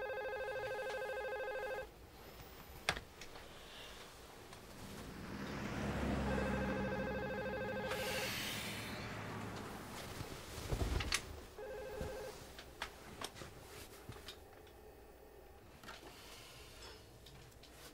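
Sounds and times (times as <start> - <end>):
telephone ringing: 0.0 - 1.9, 6.3 - 8.2, 11.6 - 12.4.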